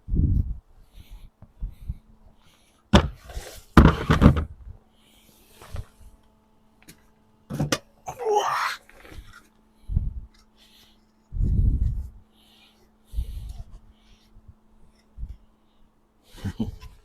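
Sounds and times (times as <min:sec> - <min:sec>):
tools and engine parts clunking: 0:06.8 - 0:08.0.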